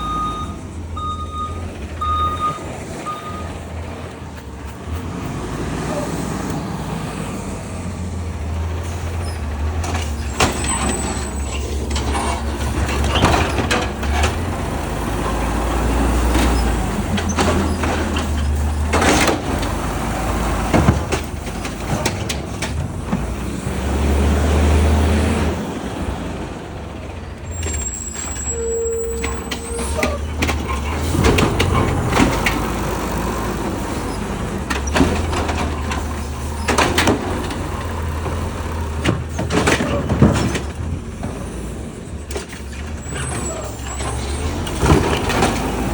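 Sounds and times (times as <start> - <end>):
garbage truck engine rumbling: 0.0 - 45.9
metal clanks and bangs: 8.7 - 23.5, 27.5 - 41.6.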